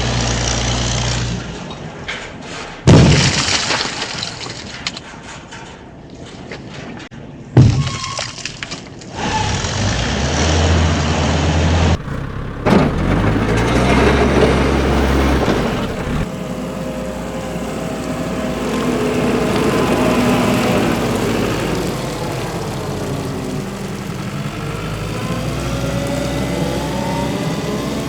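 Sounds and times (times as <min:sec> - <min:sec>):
heavy engine rumbling: 0:09.1 - 0:28.0.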